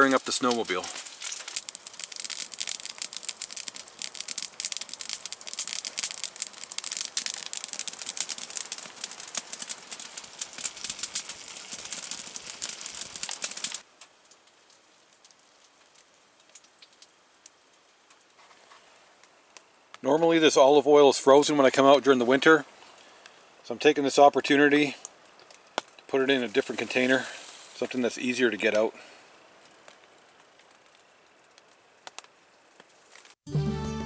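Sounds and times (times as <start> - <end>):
burgers sizzling in a pan: 0.0 - 17.5.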